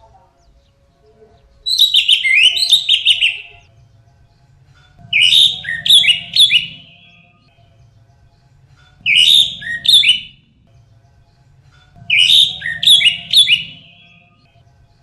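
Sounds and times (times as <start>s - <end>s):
thrush singing warbled notes: 1.7s - 3.7s, 5.0s - 7.7s, 9.0s - 10.7s, 12.0s - 14.5s.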